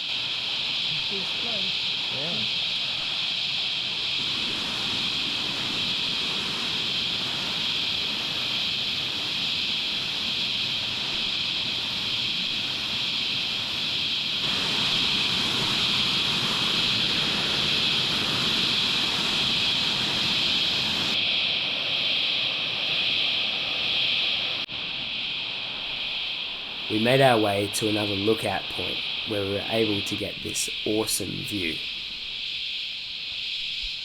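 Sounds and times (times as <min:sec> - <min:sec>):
cicadas shrilling: 0:00.0 - 0:34.0
low rushing noise: 0:26.9 - 0:31.8.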